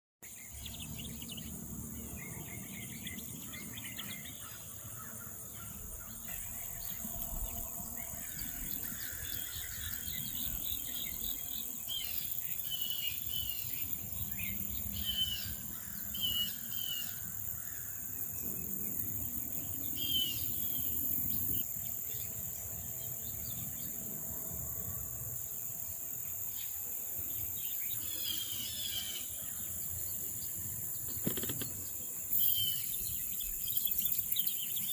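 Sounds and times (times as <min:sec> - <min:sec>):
insects chorus: 0:00.2 - 0:34.9
birds chirping: 0:00.3 - 0:19.0.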